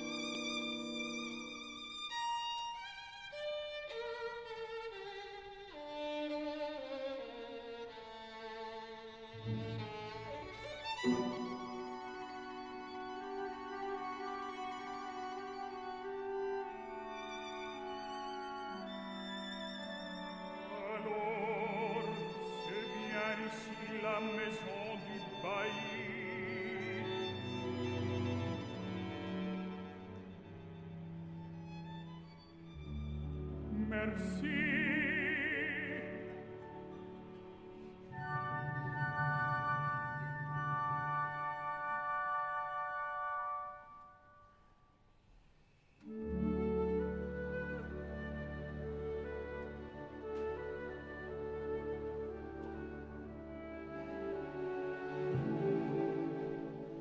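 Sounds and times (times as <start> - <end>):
violin slow melody with vibrato: 0.0 - 43.9, 46.0 - 57.0
orchestra with strings: 0.0 - 44.4, 46.0 - 57.0
operatic tenor singing: 20.4 - 27.7, 33.7 - 37.1.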